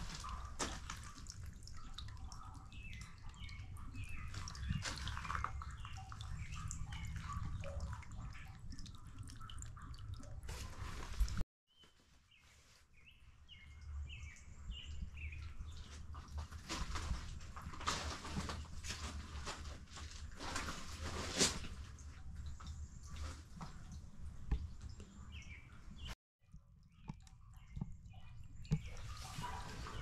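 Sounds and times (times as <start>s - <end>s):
songbird chirping: 0.0s - 10.4s, 11.7s - 17.2s.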